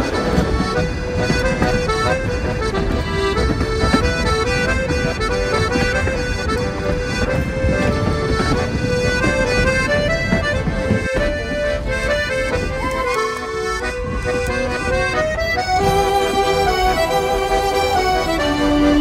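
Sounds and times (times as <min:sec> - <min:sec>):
accordion music: 0:00.0 - 0:19.0.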